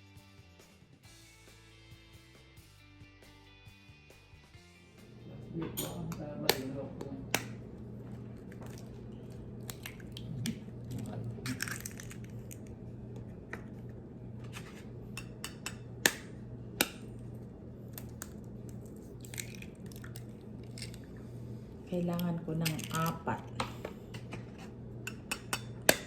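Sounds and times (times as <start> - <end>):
low steady hum: 4.6 - 26.0
kitchen items clicking and knocking: 22.6 - 24.4.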